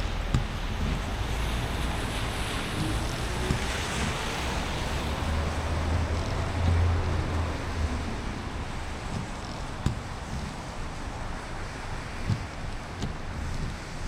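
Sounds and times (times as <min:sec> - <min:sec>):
low road rumble: 0:00.0 - 0:14.0
rain and tyre spray hiss: 0:00.0 - 0:14.0.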